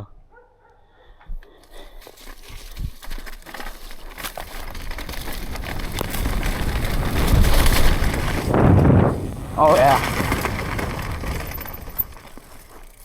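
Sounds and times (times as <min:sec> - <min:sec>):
bike tyres rolling on dirt: 0:01.8 - 0:13.0
bike clicks and rattles: 0:02.0 - 0:13.0
wind on microphone: 0:05.6 - 0:11.6.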